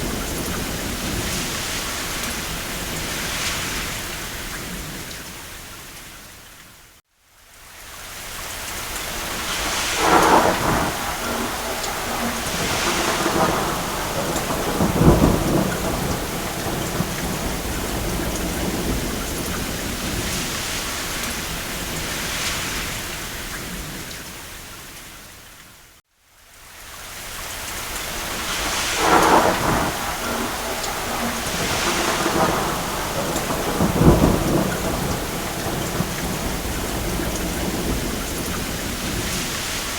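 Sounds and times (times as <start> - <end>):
distant thunder rumble: 0.0 - 5.2, 9.2 - 24.2, 28.2 - 39.9
rain on a roof: 0.0 - 39.9.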